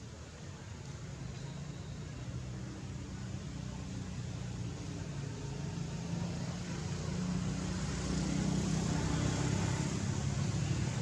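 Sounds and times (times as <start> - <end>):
motor vehicle engine passing: 6.2 - 11.0.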